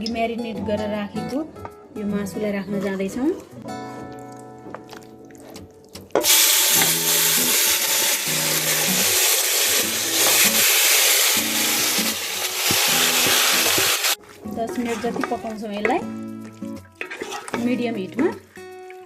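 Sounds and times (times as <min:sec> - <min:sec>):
chicken sizzling in hot oil: 0:06.2 - 0:14.2.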